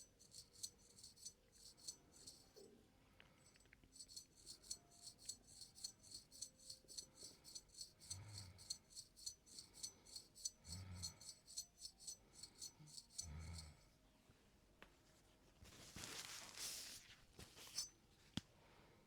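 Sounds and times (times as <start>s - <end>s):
razor scraping skin: 0.0s - 2.6s, 3.5s - 13.7s.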